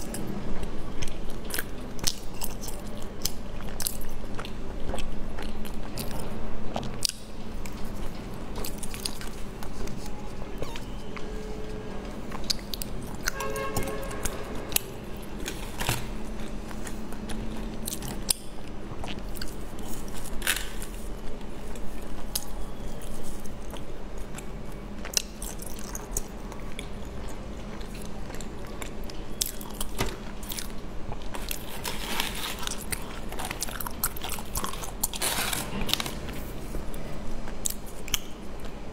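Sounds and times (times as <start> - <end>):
chewing a soft sweet: 0.0 - 15.4.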